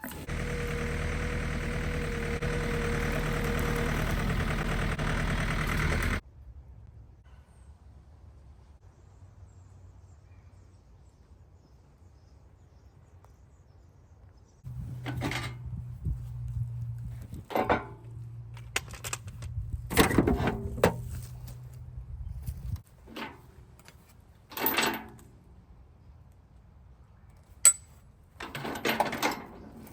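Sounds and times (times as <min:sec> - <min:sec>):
tractor engine idling: 0:00.0 - 0:06.2, 0:14.7 - 0:21.8.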